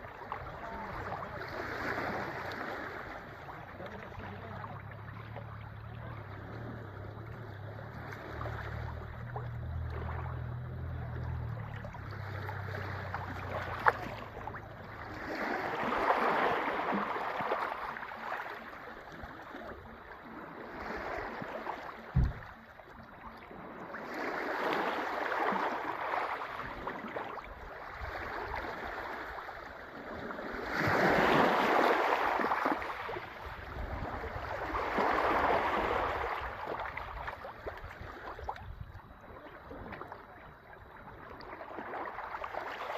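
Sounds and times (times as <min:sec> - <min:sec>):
sea waves washing onto shore: 0:06.0 - 0:22.6, 0:23.7 - 0:38.5
brief thump: 0:22.1 - 0:22.5
wind rumble on microphone: 0:22.1 - 0:22.5, 0:33.1 - 0:41.6.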